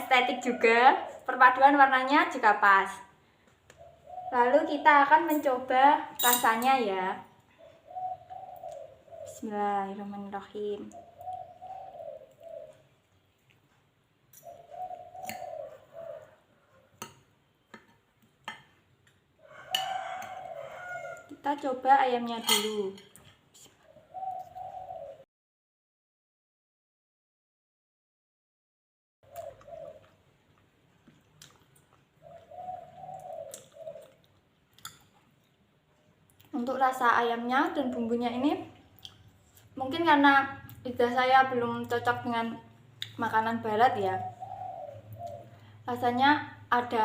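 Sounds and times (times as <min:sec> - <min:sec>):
dove cooing: 0:03.8 - 0:04.4, 0:07.6 - 0:09.5, 0:11.0 - 0:13.0, 0:14.4 - 0:17.0, 0:19.4 - 0:21.2, 0:23.9 - 0:25.2, 0:29.3 - 0:30.2, 0:32.2 - 0:34.2, 0:43.9 - 0:46.1
bird calling: 0:03.8 - 0:04.5, 0:07.5 - 0:09.5, 0:10.9 - 0:12.9, 0:14.4 - 0:17.0, 0:23.9 - 0:25.2, 0:29.3 - 0:30.1, 0:32.2 - 0:34.2, 0:44.0 - 0:45.8
cutlery clinking on a plate: 0:06.2 - 0:06.6, 0:22.4 - 0:23.3.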